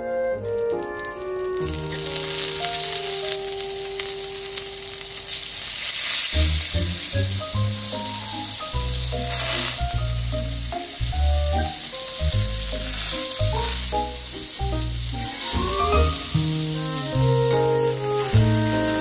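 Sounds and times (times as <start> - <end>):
fish sizzling in butter: 0.6 - 19.0
music with bouncy bass line: 15.6 - 19.0.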